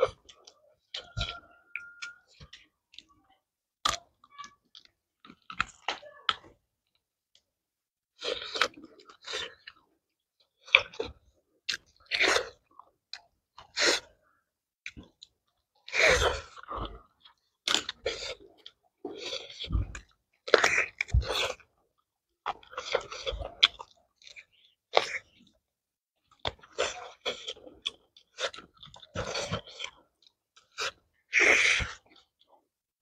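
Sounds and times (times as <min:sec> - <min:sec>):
chewing mouth sounds: 0:00.0 - 0:03.2, 0:22.4 - 0:25.4, 0:26.3 - 0:32.5.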